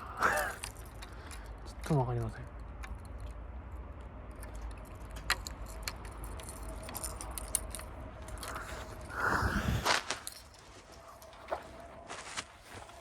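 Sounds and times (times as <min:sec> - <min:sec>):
rustling noise: 0:06.3 - 0:13.0.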